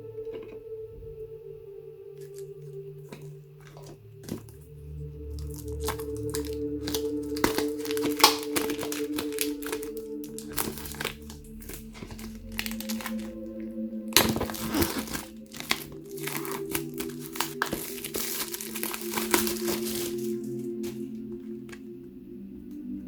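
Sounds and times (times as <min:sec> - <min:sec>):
soft background music: 0:00.0 - 0:23.0
plastic packaging crinkling: 0:05.3 - 0:21.8.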